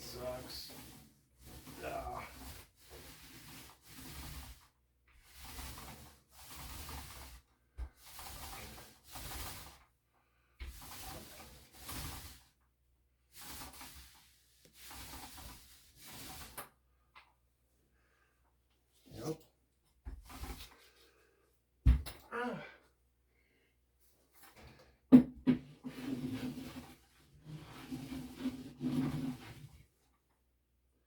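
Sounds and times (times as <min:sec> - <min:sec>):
roller rubbing on wall: 0:00.0 - 0:09.9, 0:10.6 - 0:12.6, 0:13.3 - 0:16.8, 0:20.0 - 0:21.1, 0:25.6 - 0:30.1.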